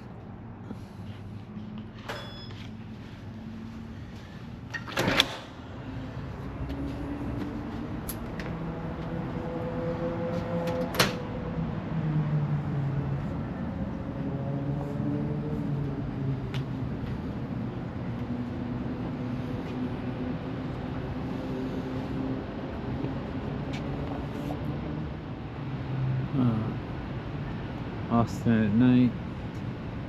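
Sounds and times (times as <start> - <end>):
elevator hum rising: 0.0 - 28.5
elevator door clunk: 2.0 - 2.8, 4.7 - 5.6.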